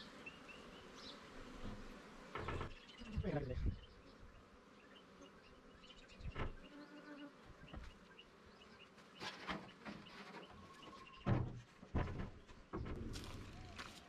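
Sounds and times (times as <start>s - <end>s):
honeybees buzzing: 0.0s - 11.3s
knocks and thumps of handling: 11.2s - 13.7s.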